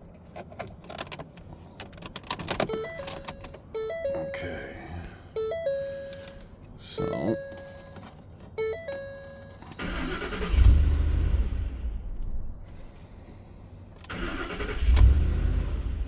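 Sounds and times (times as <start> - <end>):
truck engine cranking and stalling: 9.0 - 13.0, 13.8 - 16.0.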